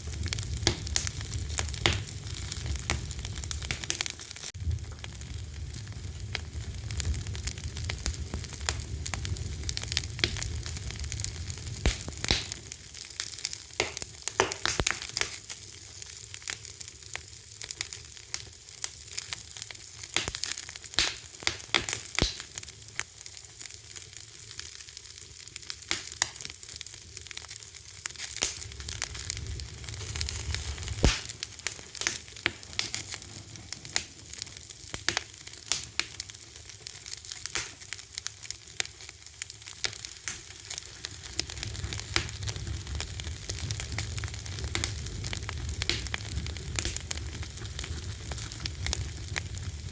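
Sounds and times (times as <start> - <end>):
low rumble of flame: 0.0 - 23.0, 23.6 - 49.9
wood fire crackling: 0.0 - 49.9.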